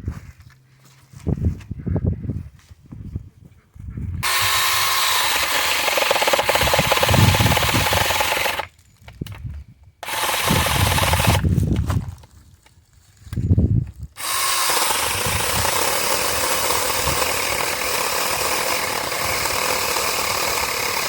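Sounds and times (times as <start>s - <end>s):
chainsaw cutting wood: 4.2s - 8.7s, 10.0s - 11.5s, 14.2s - 21.0s.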